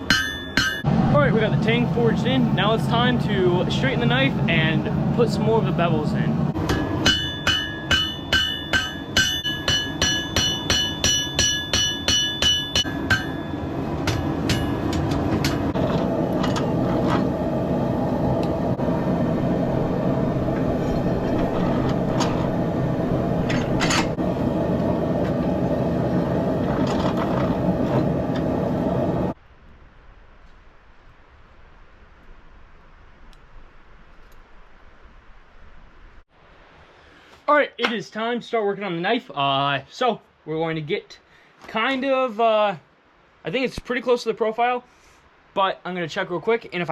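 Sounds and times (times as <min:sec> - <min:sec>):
hammer striking metal on anvil: 0:00.0 - 0:00.9, 0:06.6 - 0:15.8
steady rushing noise: 0:00.0 - 0:36.9.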